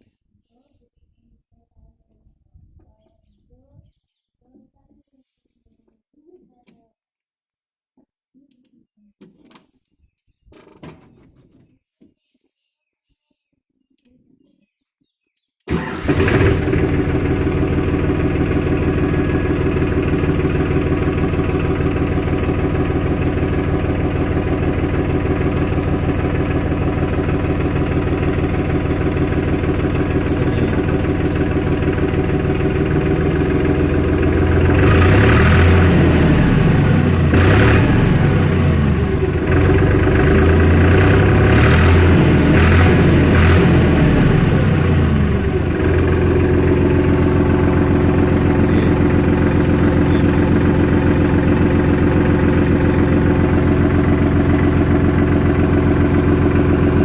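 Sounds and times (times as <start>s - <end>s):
tractor diesel engine: 15.7s - 57.0s.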